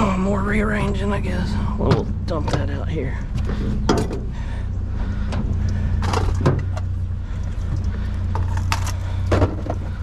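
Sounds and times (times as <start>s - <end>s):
vehicle engine idling: 0.0s - 10.0s
objects knocking and clattering: 8.3s - 9.9s.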